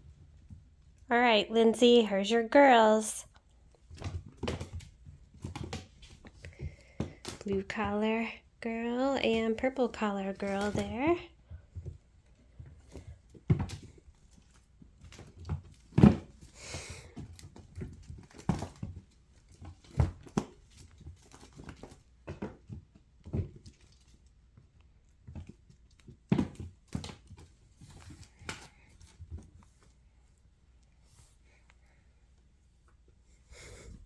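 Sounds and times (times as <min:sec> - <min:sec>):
kittens thumping and scuffling: 0:03.7 - 0:08.6, 0:10.4 - 0:30.3.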